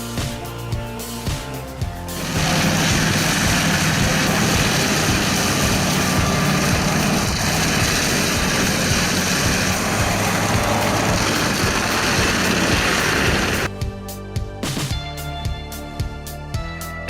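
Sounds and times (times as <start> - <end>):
heavy machine engine running: 2.0 - 13.7.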